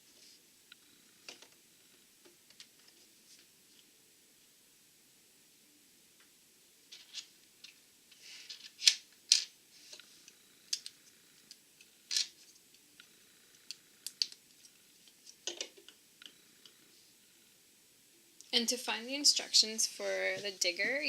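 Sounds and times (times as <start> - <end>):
plastic bricks clicking: 13.7 - 14.4.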